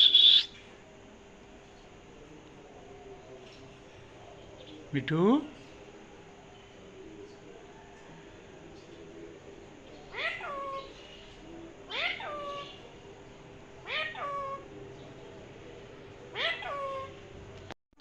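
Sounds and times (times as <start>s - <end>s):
parrot meow-like calls: 0.0s - 0.5s, 10.1s - 11.0s, 11.9s - 12.8s, 13.8s - 14.7s, 16.3s - 17.2s.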